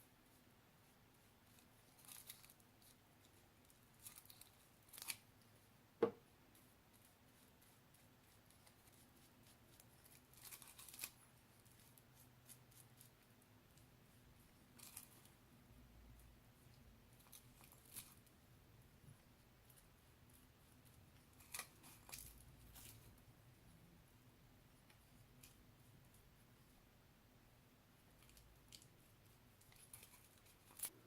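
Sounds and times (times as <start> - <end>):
hands rustling crafting materials: 28.1 - 31.0.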